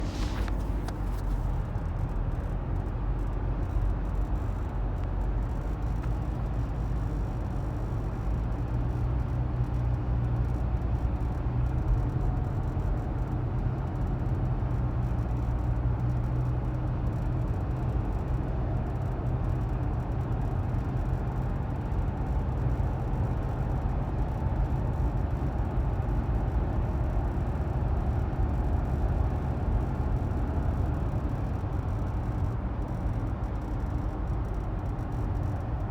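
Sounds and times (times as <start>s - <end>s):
car interior rumble: 0.0s - 8.2s.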